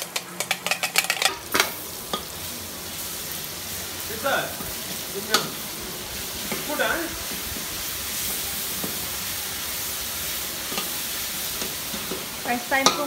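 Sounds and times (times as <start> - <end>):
onions sizzling in a wok: 0.0 - 13.0
metal spatula stirring: 0.1 - 2.4, 10.3 - 13.0
spatula clinking against wok: 10.7 - 11.0, 11.6 - 13.0.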